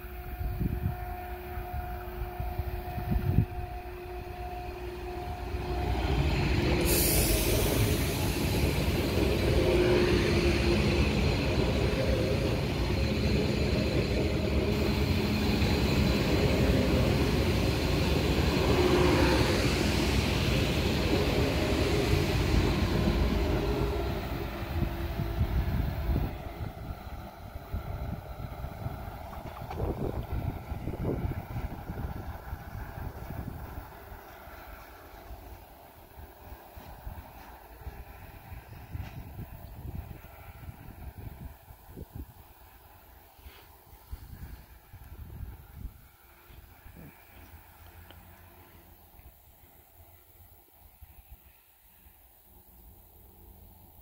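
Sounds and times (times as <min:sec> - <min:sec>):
train wheels rumbling on rail: 0:00.0 - 0:54.0
train whine: 0:00.0 - 0:54.0
rushing air: 0:05.5 - 0:47.7.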